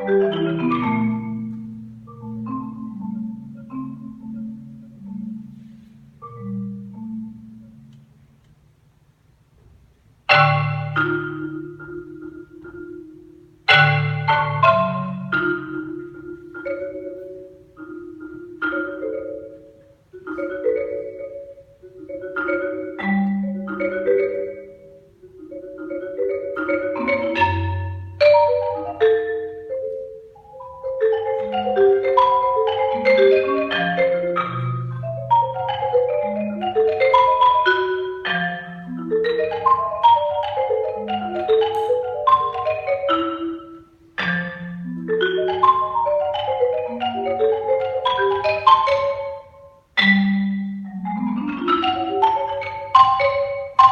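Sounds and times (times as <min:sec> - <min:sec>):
solo marimba playing: 0:00.0 - 0:08.8, 0:10.2 - 0:53.9.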